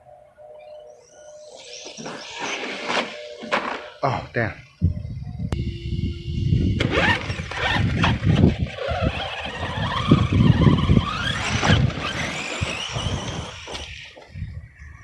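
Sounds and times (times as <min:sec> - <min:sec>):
electric motor whine: 0:01.3 - 0:04.0, 0:05.6 - 0:14.3
tyre and chassis rumble: 0:06.6 - 0:14.4.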